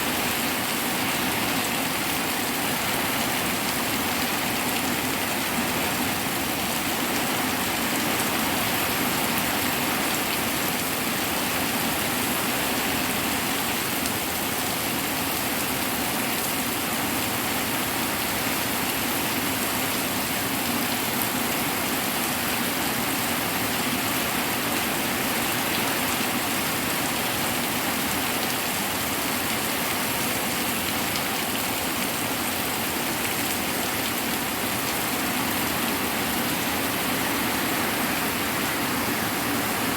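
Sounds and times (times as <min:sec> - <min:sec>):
hard rain falling: 0:00.0 - 0:39.9.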